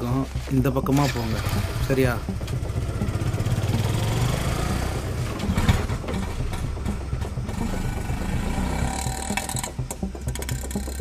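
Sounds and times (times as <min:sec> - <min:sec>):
engine running with low putter: 0:00.4 - 0:11.0.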